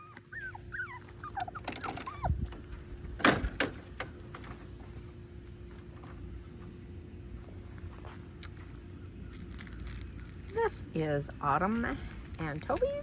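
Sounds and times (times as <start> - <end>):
puppies whimpering: 0.0 - 2.5
faint steady hum: 0.0 - 13.0.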